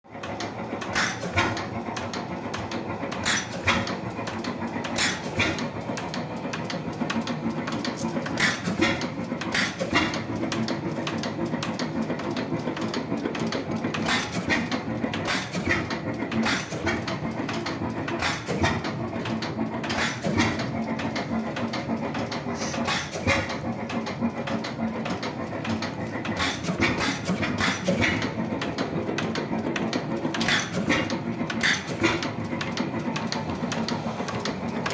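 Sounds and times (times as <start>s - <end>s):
oil engine clattering: 0.2s - 34.9s.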